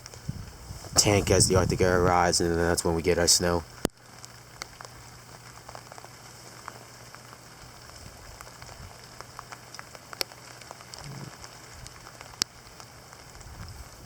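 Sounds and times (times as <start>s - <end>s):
heavy rain hiss: 0.0s - 14.0s
raindrops ticking close by: 0.0s - 14.0s.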